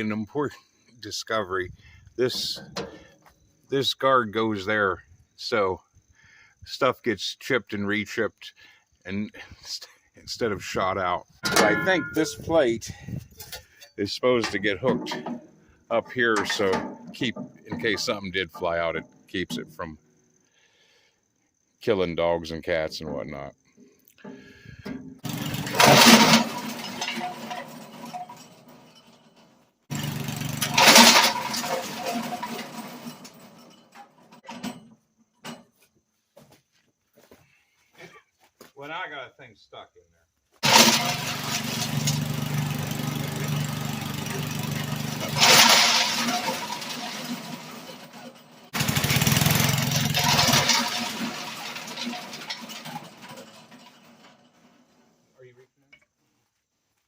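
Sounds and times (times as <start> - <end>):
small gasoline engine starting: 25.2 - 28.1, 29.9 - 33.4, 40.6 - 54.1.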